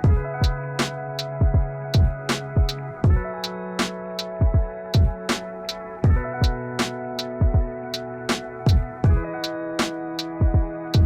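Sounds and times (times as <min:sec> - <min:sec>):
kick drums: 0:00.0 - 0:00.7, 0:01.3 - 0:03.4, 0:04.4 - 0:05.3, 0:06.0 - 0:06.7, 0:07.4 - 0:07.8, 0:08.7 - 0:09.4, 0:10.4 - 0:11.0
hi-hat strikes: 0:00.0 - 0:11.0.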